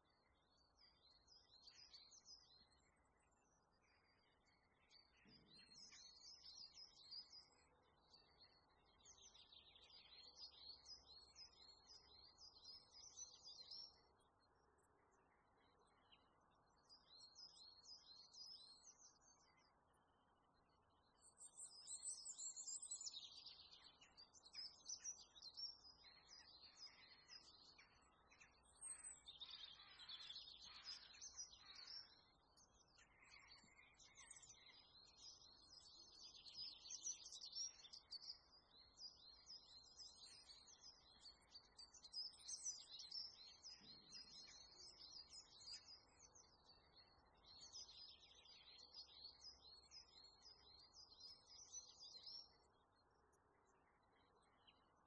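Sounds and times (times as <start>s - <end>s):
small birds chirping and twittering: 0.0s - 55.0s.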